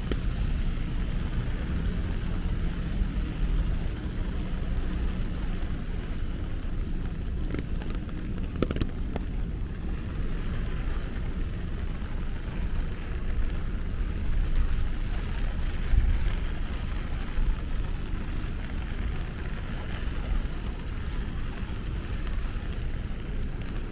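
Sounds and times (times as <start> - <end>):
constant low rumble: 0.0 - 23.9
faint ticks: 0.0 - 23.9
steady rain hiss: 0.0 - 23.9.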